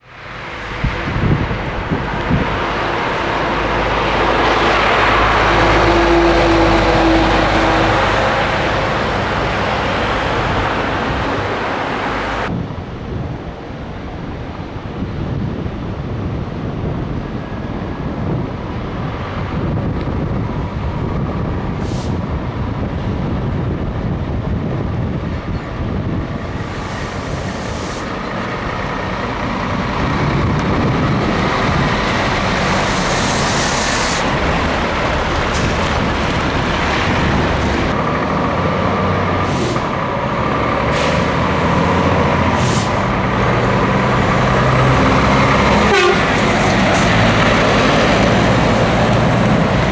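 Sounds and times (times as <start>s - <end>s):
truck diesel engine running: 0.0s - 12.5s, 25.4s - 49.9s
short air hisses: 21.8s - 22.2s, 26.6s - 28.2s, 32.6s - 34.4s, 39.4s - 40.0s, 42.5s - 43.1s.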